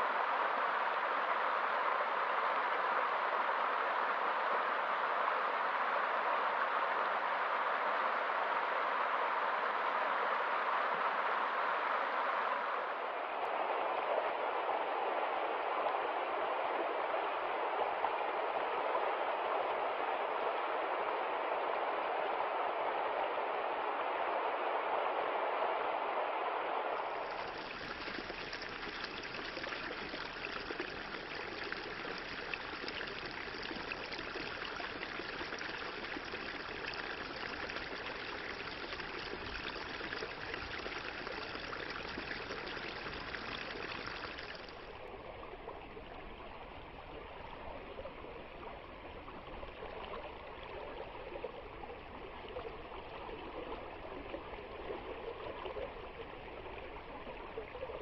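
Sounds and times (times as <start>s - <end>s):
stream flowing over rocks: 26.9s - 58.0s.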